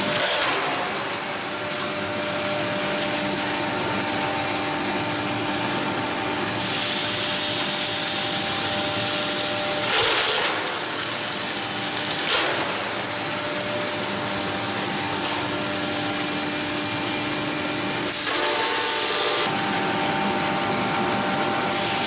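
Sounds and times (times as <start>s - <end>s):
wood-processing machine running: 0.0s - 22.0s.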